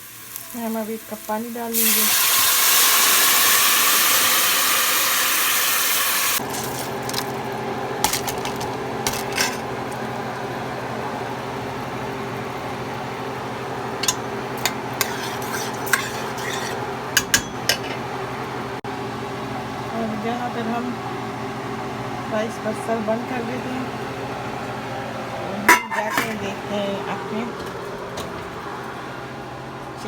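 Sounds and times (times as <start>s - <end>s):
water hissing in hot oil: 0.0s - 7.2s
spoon scraping a pot: 14.0s - 18.0s.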